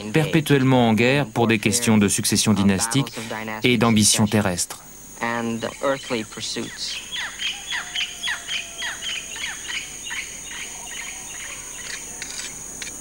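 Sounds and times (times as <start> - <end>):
high-pitched insect drone: 0.0 - 13.0
bird chirping: 5.5 - 12.5.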